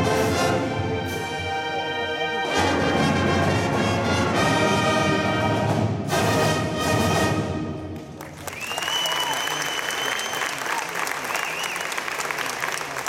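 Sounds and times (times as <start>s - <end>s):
marching band playing: 0.0s - 8.5s
people clapping: 8.0s - 13.0s.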